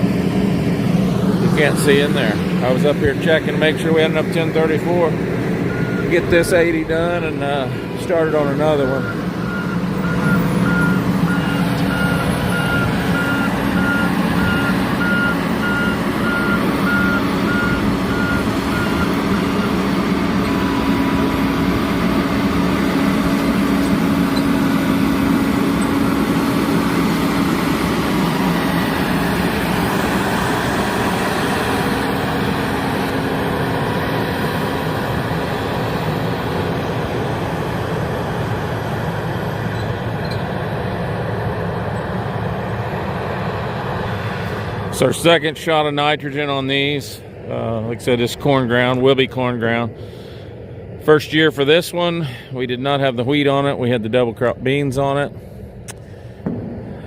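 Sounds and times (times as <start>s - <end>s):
large vehicle engine running: 0.0s - 57.0s
backup alarm beeping: 5.6s - 22.4s.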